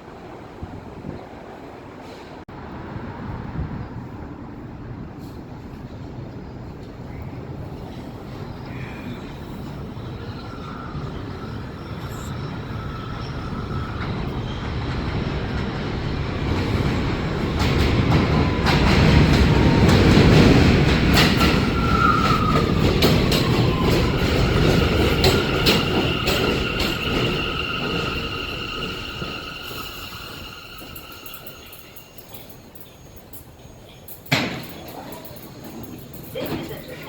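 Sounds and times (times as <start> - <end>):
subway train running: 0.0 - 37.0
steel wheels squealing on rails: 7.0 - 37.0
wheels clicking over rail joints: 14.0 - 28.2, 30.8 - 37.0.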